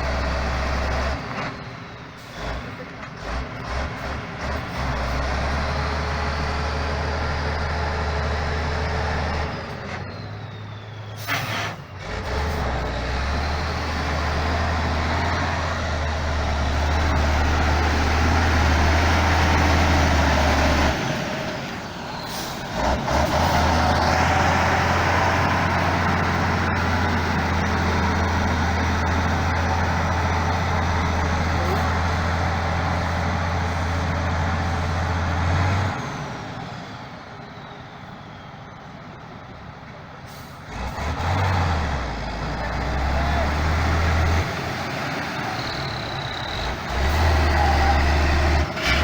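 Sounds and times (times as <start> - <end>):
diesel truck engine under load: 0.0 - 49.0.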